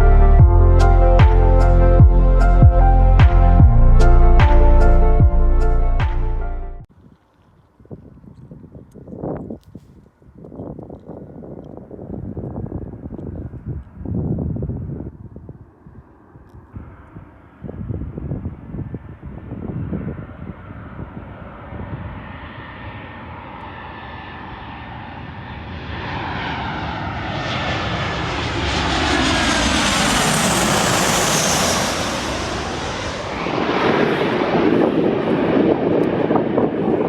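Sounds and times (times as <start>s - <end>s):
jet engines whining past: 12.5s - 37.0s.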